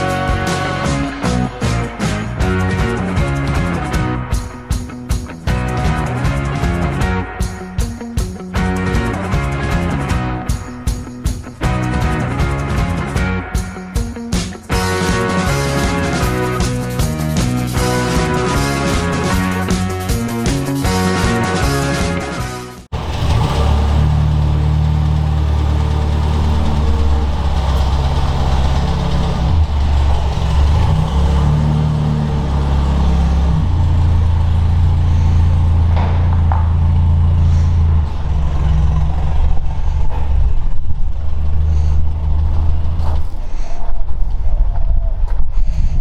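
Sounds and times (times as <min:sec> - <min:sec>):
vehicle engine running: 0:22.8 - 0:44.6.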